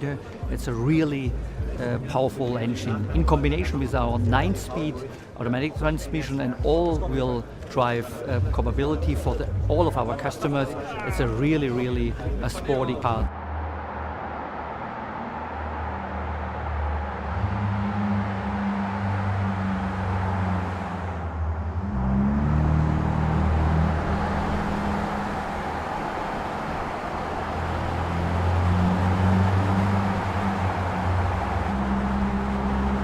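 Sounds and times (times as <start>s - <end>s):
car engine humming: 13.3s - 33.0s.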